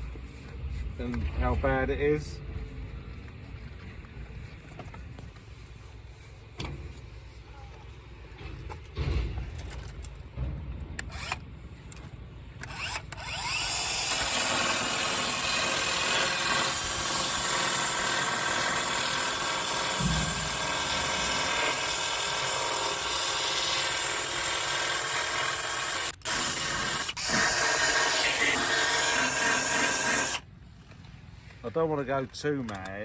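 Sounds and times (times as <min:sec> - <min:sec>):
power grinder grinding metal: 0:12.6 - 0:30.4.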